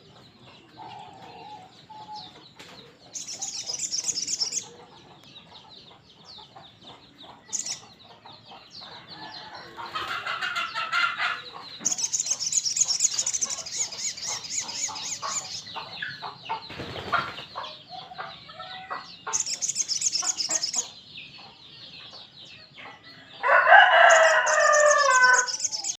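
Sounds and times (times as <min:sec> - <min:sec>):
bird chipping calls: 0:00.0 - 0:21.6, 0:23.8 - 0:26.0
crowing-like bird calls: 0:08.9 - 0:15.7, 0:17.1 - 0:21.0, 0:23.2 - 0:26.0
high bird trilling: 0:10.2 - 0:15.7, 0:18.6 - 0:21.0, 0:23.5 - 0:26.0.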